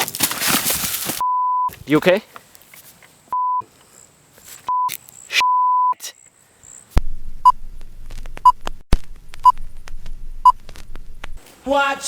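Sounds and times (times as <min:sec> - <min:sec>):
censor bleep tones: 0:01.2 - 0:01.7, 0:03.4 - 0:03.6, 0:04.7 - 0:06.0
short electronic beeps: 0:04.7 - 0:06.0
low hum: 0:07.0 - 0:11.4.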